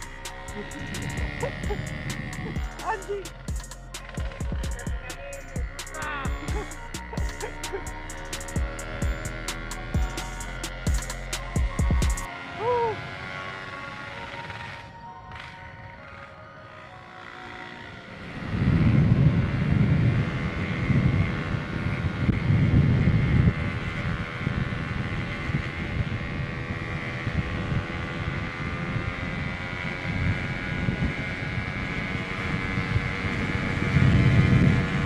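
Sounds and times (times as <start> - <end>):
wind buffeting on microphone: 0.0 - 3.2, 18.2 - 35.0
two-stroke motorcycle engine running: 0.0 - 35.0.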